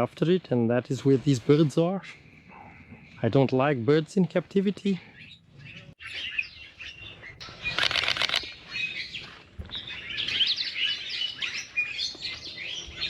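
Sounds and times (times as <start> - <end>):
birds chirping and calling: 4.6 - 13.0.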